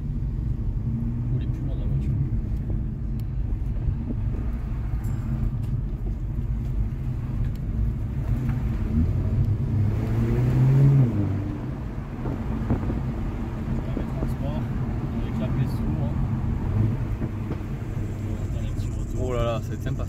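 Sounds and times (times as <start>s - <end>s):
car engine from inside cabin: 0.0s - 20.0s
road rumble: 0.0s - 20.0s.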